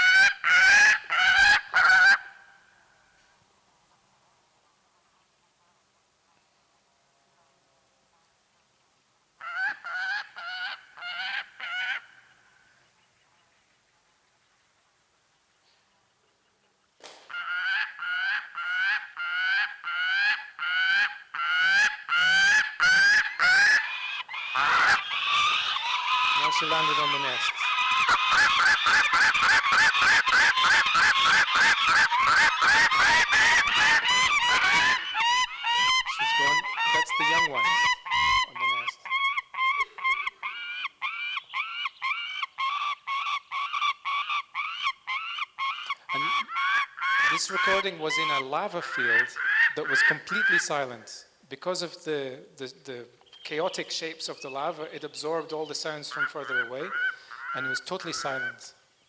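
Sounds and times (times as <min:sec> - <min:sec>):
falcon harsh rising calls: 0:00.0 - 0:02.5, 0:17.3 - 0:50.9, 0:55.5 - 0:58.7.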